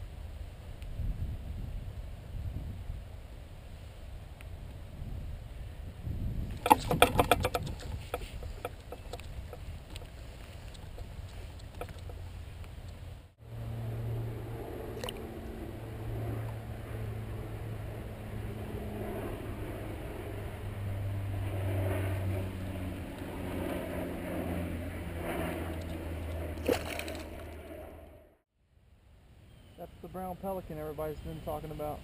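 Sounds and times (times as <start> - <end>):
engine droning: 6.6 - 28.4.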